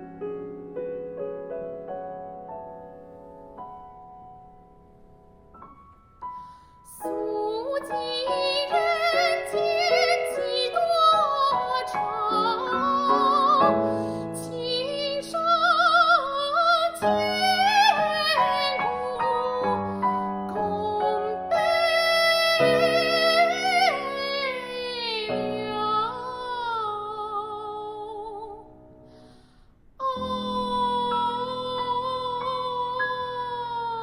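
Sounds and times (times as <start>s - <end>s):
piano accompaniment: 0.0s - 27.4s, 30.0s - 34.0s
opera singing with fast vibrato: 6.9s - 28.6s, 30.0s - 34.0s.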